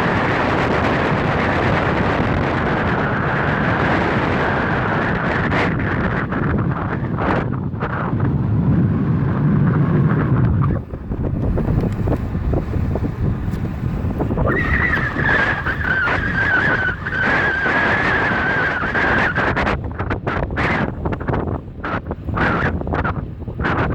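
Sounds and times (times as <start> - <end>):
road rumble: 0.0 - 23.9
wind on microphone: 0.0 - 23.9
steady high whine: 5.1 - 23.9.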